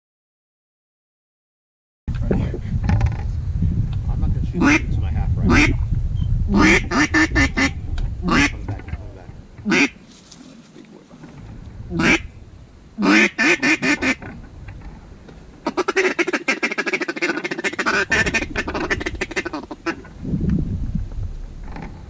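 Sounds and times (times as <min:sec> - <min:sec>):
low wind rumble: 0:02.1 - 0:22.0
duck quacking: 0:04.6 - 0:05.8, 0:06.5 - 0:11.2, 0:11.9 - 0:12.3, 0:13.0 - 0:14.4, 0:15.6 - 0:20.1.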